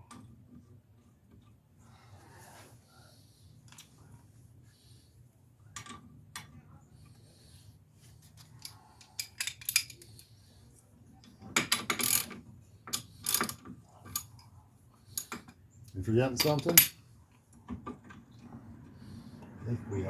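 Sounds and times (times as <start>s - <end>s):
tools clinking on metal: 8.6s - 10.1s, 11.6s - 14.5s, 16.3s - 17.0s.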